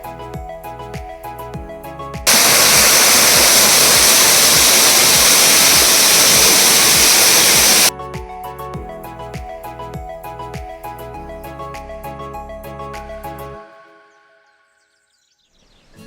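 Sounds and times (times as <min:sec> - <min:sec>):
background music: 0:00.0 - 0:02.2, 0:07.9 - 0:14.9
waterfall rushing: 0:02.3 - 0:07.9.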